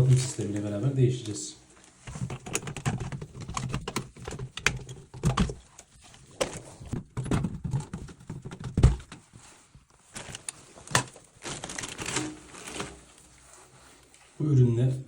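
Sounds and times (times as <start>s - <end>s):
plastic clicks and knocks: 2.1s - 9.3s.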